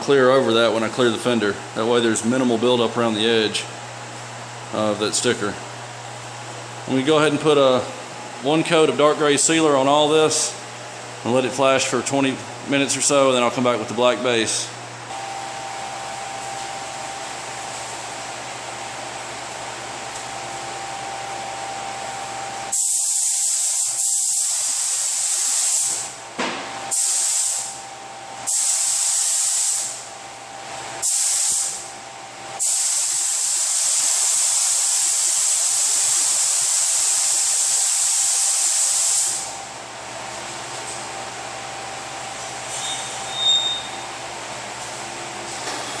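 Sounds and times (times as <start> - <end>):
steady air noise hum: 0.0 - 46.0
spray gun hissing: 22.7 - 26.0, 26.9 - 27.8, 28.5 - 30.0, 31.0 - 31.8, 32.6 - 39.5.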